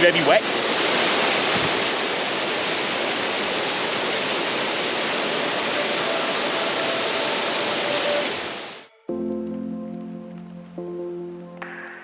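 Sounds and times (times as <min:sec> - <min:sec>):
waterfall splashing: 0:00.0 - 0:08.9.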